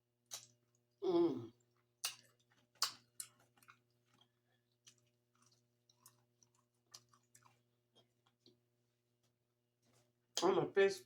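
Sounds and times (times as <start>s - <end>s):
wet mouth clicks and smacks: 0.3s - 0.6s, 2.0s - 4.3s
person chewing food: 0.3s - 0.8s, 1.4s - 8.6s.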